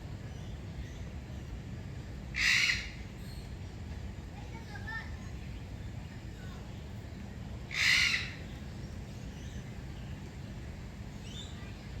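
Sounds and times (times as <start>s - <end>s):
low background noise: 0.0s - 12.0s
harsh bird call: 7.7s - 8.4s.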